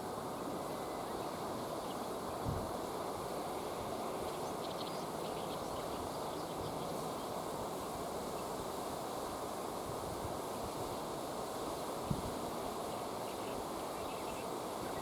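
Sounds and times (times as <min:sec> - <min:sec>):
flowing river water: 0:00.0 - 0:15.0.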